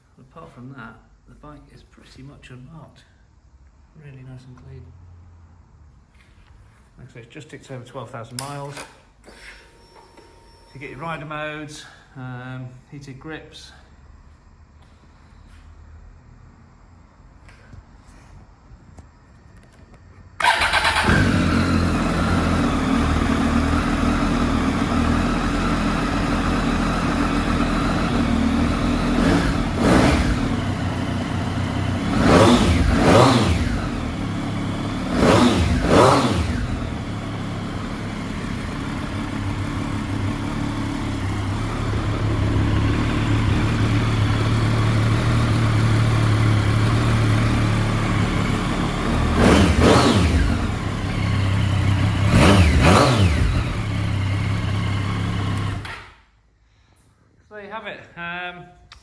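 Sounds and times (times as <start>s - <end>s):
motorcycle engine idling and revving: 19.6s - 56.3s.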